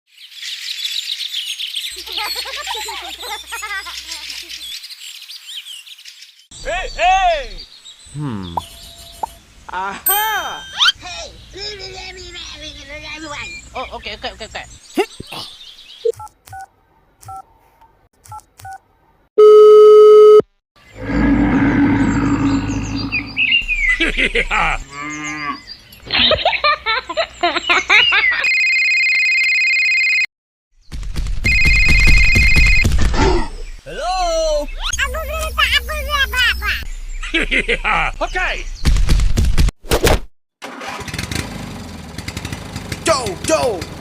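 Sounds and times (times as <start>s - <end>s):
birds chirping and twittering: 0.1s - 16.1s, 20.8s - 28.5s, 32.6s - 39.2s
keypad dialing tones: 19.4s - 20.4s, 31.5s - 32.9s
loud steady beep: 19.4s - 20.4s, 31.5s - 32.9s
low bending voice-like call: 20.9s - 23.8s.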